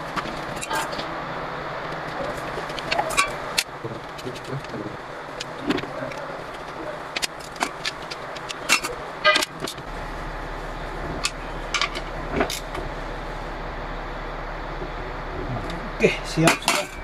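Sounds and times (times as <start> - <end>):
low steady hum: 0.0 - 17.0
metal tools clinking: 16.4 - 17.0.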